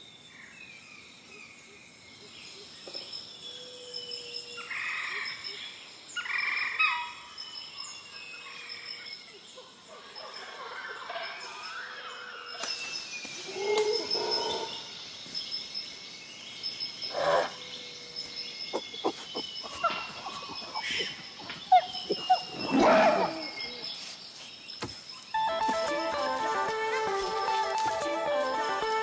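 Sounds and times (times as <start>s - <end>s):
music: 25.4s - 29.0s.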